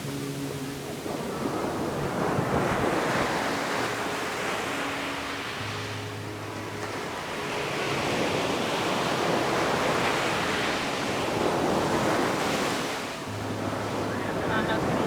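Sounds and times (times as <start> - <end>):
ocean waves washing up beach: 0.0 - 15.0.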